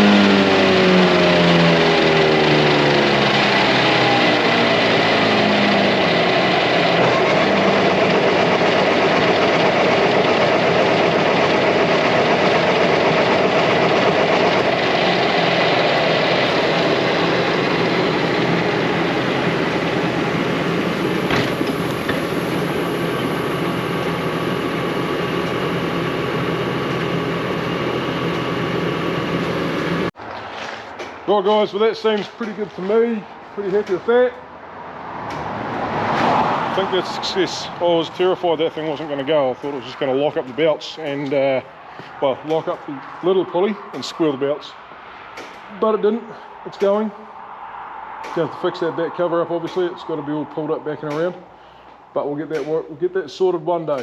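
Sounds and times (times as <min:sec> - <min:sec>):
tractor engine running: 0:00.0 - 0:30.2, 0:30.9 - 0:44.7.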